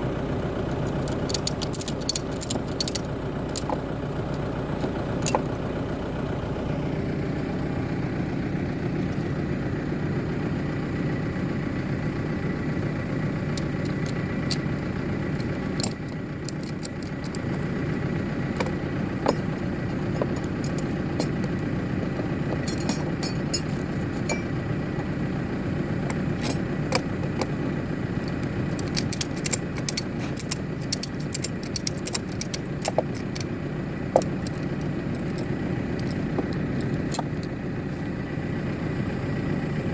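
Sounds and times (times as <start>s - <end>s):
tractor engine running: 0.0s - 39.9s
slate plates clinking: 22.6s - 24.6s.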